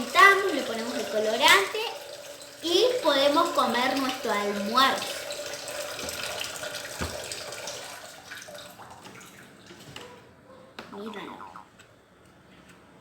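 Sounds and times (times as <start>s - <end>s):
tap water running into pot: 0.0s - 9.8s.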